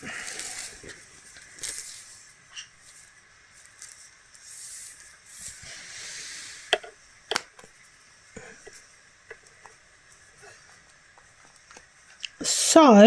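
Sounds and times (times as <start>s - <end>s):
rustling and handling noises: 0.0s - 8.0s.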